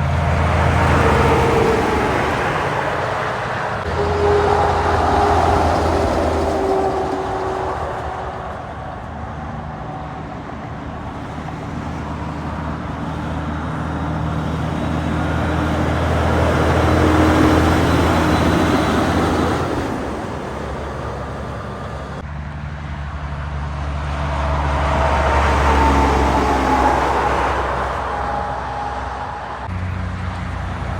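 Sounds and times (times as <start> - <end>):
trucks driving past: 0.0 - 30.9.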